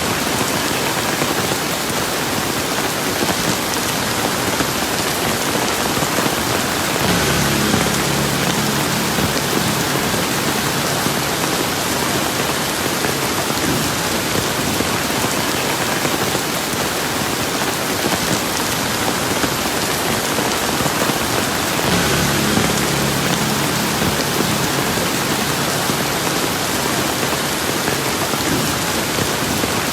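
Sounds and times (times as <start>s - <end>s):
steady rain falling: 0.0s - 29.9s
faint low hum: 6.9s - 13.4s, 21.9s - 28.1s.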